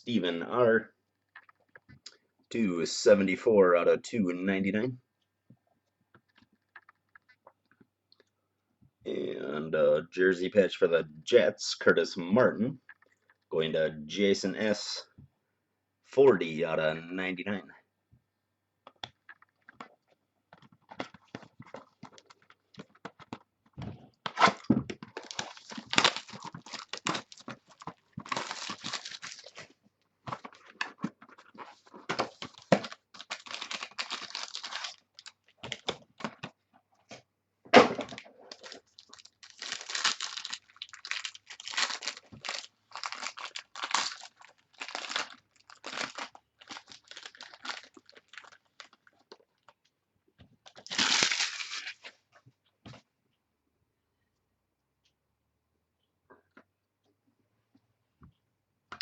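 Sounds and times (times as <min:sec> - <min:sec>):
cards and packaging clicking: 0:20.6 - 0:36.6, 0:38.0 - 0:49.8, 0:50.7 - 0:52.1
card pack wrappers tearing: 0:24.3 - 0:29.8, 0:30.4 - 0:36.0, 0:38.5 - 0:49.2, 0:50.8 - 0:52.1.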